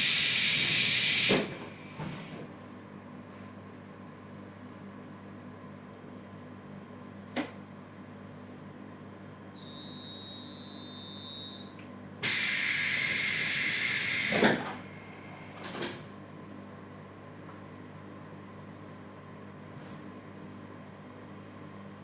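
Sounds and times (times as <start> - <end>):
compressed air hissing: 0.0 - 1.4, 12.2 - 15.6.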